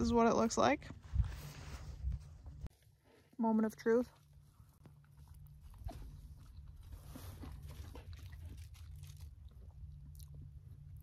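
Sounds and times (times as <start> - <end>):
wind rumble on microphone: 0.8 - 2.7
person chewing food: 5.2 - 11.0.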